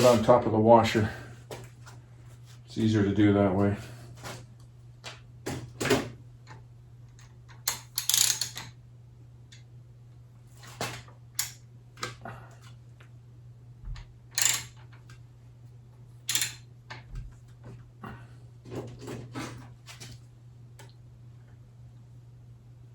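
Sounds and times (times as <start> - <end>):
steady low hum: 0.0 - 22.9
small tools clicking and tapping: 6.5 - 8.8, 14.4 - 15.1, 16.3 - 17.1.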